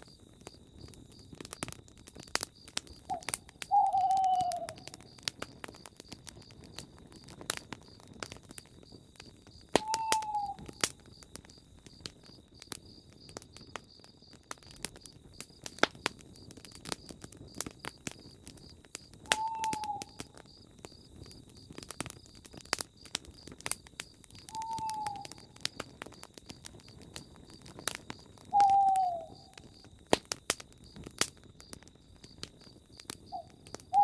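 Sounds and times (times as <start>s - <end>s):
campfire crackling and popping: 0.0s - 34.0s
night insects trilling: 0.0s - 34.0s
owl hooting: 3.1s - 5.0s, 9.8s - 10.8s, 19.3s - 20.2s, 24.5s - 25.5s, 28.5s - 29.6s, 33.3s - 34.0s.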